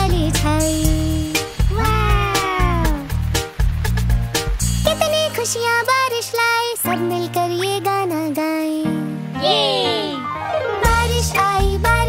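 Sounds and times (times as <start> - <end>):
drum beat and bass: 0.0 - 5.0, 10.9 - 12.0.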